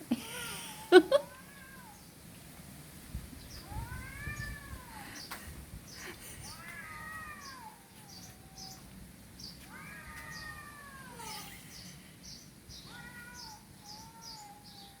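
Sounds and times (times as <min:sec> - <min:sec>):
cat meowing: 0:03.6 - 0:05.1, 0:06.4 - 0:08.9, 0:09.6 - 0:11.7, 0:12.8 - 0:15.0.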